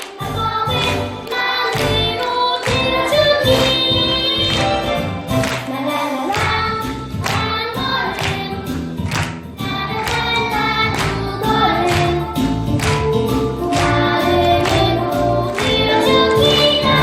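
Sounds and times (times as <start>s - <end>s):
children singing in unison: 0.0s - 4.6s, 13.6s - 17.0s
backing music: 0.0s - 17.0s.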